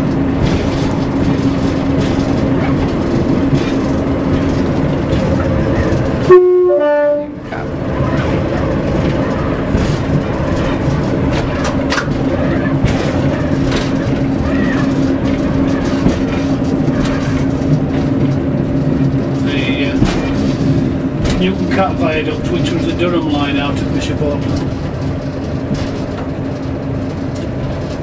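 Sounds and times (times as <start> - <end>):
train engine and wheels rumbling: 0.0 - 28.0
two-note train horn blast: 6.2 - 7.5.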